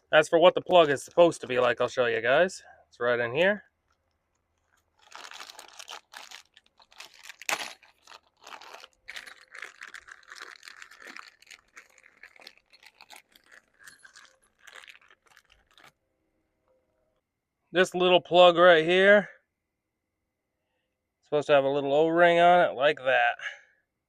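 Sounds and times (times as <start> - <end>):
rummaging through bag of parts: 4.6 - 15.9
small parts clicking and clinking: 8.8 - 15.9.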